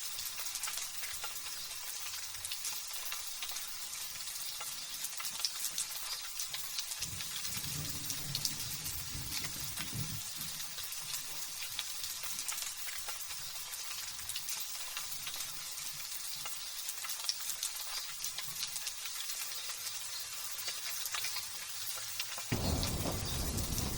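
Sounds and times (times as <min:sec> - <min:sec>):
light drizzle falling: 0:00.0 - 0:23.9
faint low rumble: 0:22.5 - 0:23.9.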